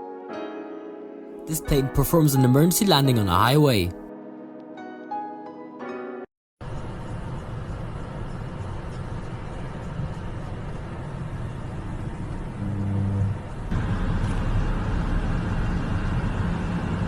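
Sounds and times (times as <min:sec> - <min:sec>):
highway traffic rumble: 0:06.6 - 0:17.0.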